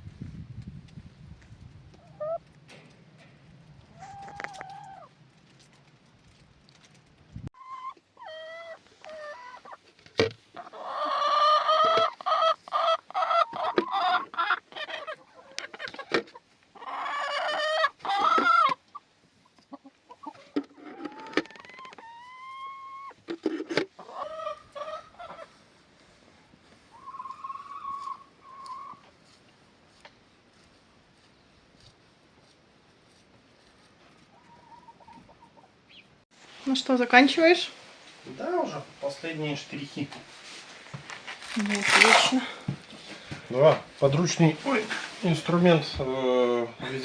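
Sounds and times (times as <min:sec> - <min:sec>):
chickens clucking: 0:01.8 - 0:30.2, 0:33.6 - 0:36.2.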